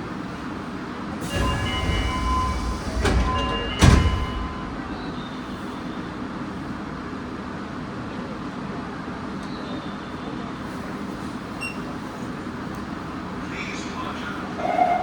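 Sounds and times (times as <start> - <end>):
subway car low hum: 0.0 - 15.0
heavy thud: 1.2 - 5.4
knocks: 1.3 - 5.2.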